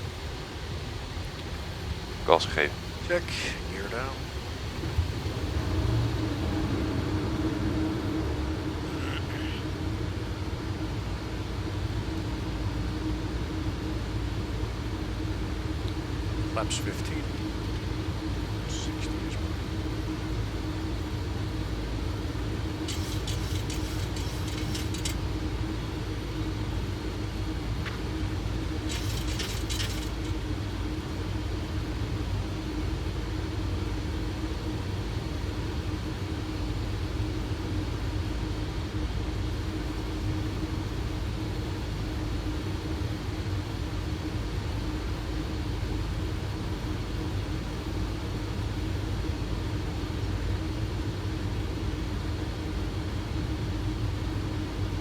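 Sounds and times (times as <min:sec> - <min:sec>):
airflow rushing in cockpit: 0:00.0 - 0:10.9, 0:16.1 - 0:37.5
steady hum: 0:00.0 - 0:55.0
crackling clicks: 0:22.8 - 0:25.2, 0:28.8 - 0:30.4.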